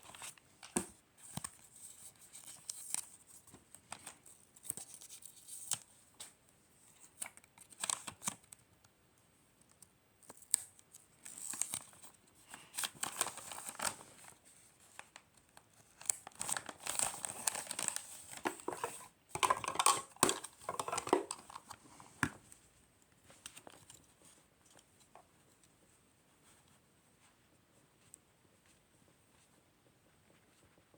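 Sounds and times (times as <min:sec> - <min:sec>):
packaging crinkled and torn: 0:10.2 - 0:15.2, 0:15.9 - 0:21.8.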